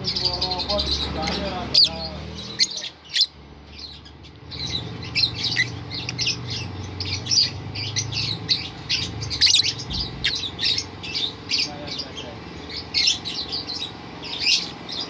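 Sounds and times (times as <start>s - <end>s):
bird shrill chirps and squawks: 0.0s - 15.0s.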